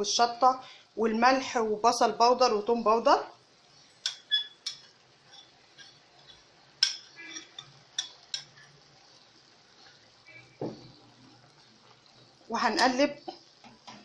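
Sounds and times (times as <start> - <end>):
spoon clinking on small dishes: 4.0 - 8.6.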